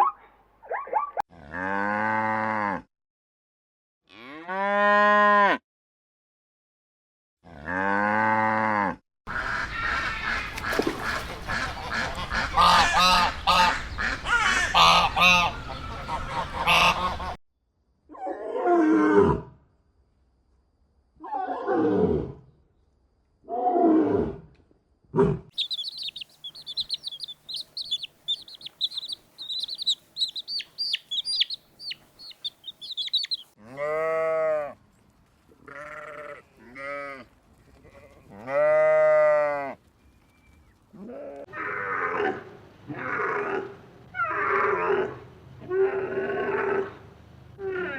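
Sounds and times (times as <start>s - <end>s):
geese honking: 9.3s - 17.4s, 25.6s - 33.5s
small birds chirping: 10.2s - 17.3s, 25.6s - 33.6s
calls falling in pitch: 25.6s - 33.5s
bleat-like calls: 25.6s - 34.3s, 35.7s - 37.2s.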